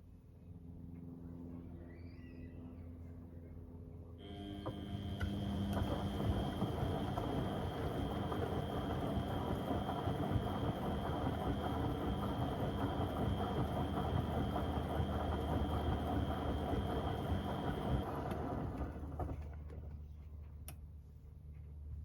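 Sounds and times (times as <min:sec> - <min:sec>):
washing machine running: 0:04.2 - 0:19.9.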